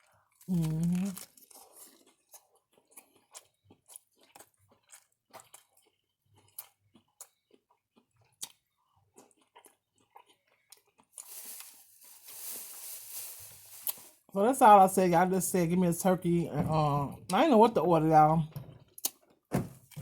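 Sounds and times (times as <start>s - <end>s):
person chewing food: 0.0s - 12.6s, 18.7s - 20.0s.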